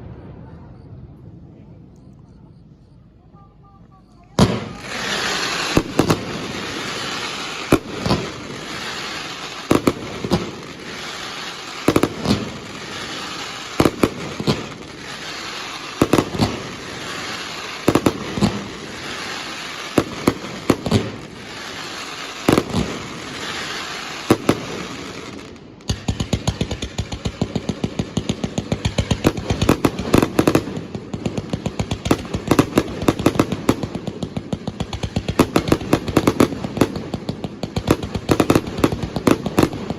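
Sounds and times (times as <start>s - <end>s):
fireworks bursting: 3.4s - 39.9s
steady hiss: 4.8s - 26.3s.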